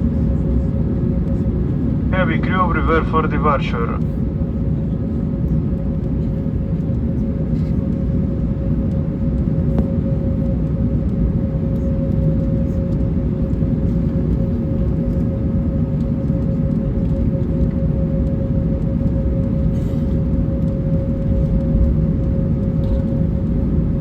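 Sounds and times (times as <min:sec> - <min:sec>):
airliner cabin rumble: 0:00.0 - 0:24.0.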